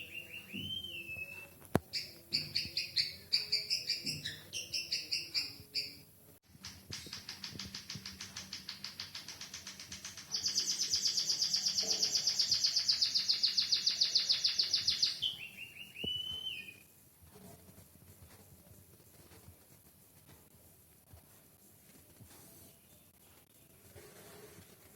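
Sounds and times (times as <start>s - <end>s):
bird singing high trill: 10.3s - 16.8s.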